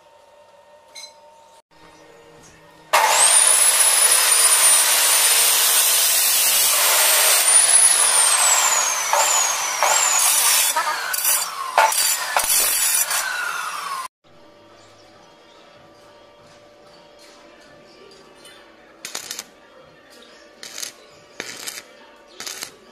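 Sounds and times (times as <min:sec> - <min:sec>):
chop saw grinding through metal: 0:03.0 - 0:14.1
saw motor winding down: 0:03.0 - 0:14.1.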